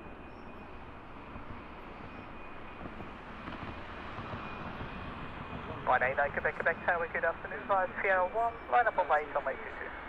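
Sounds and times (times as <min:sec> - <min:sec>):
distant jet engines rumbling: 0:00.0 - 0:10.0.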